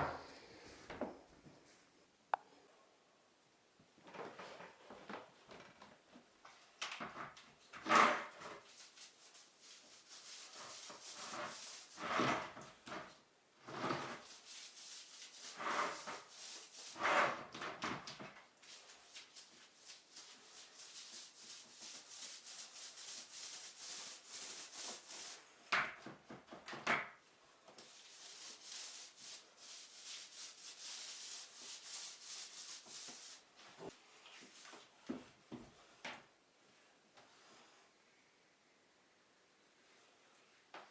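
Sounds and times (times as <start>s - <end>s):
scratchy rubbing of wallpaper: 7.1s - 26.9s, 27.8s - 35.0s.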